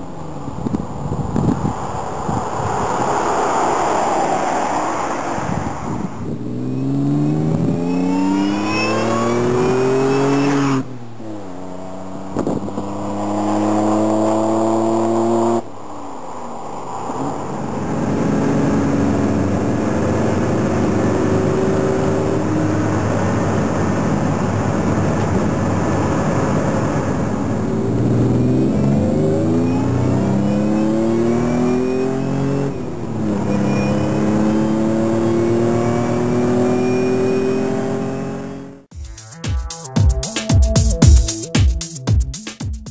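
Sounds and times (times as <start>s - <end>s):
engine exhaust accelerating: 6.2s - 15.6s, 17.3s - 39.2s.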